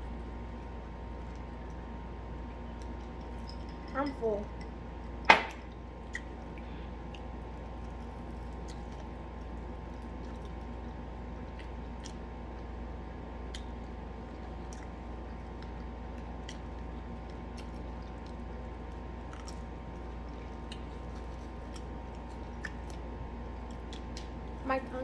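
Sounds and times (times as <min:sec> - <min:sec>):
steady low hum: 0:00.0 - 0:25.0
person chewing food: 0:05.1 - 0:24.4.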